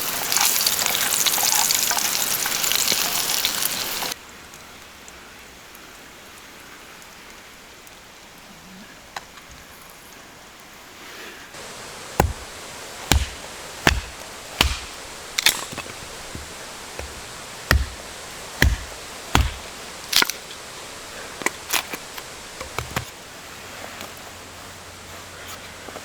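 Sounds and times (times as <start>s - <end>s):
rain hissing: 0.0s - 8.5s, 9.7s - 25.4s
wood being chopped: 11.6s - 23.1s.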